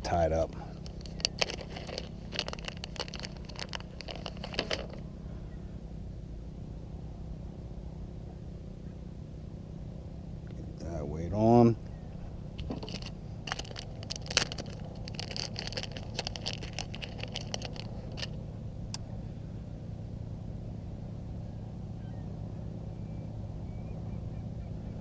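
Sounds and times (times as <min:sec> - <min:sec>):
steady low hum: 0:00.0 - 0:25.0
fishing tackle clicking: 0:12.6 - 0:18.3.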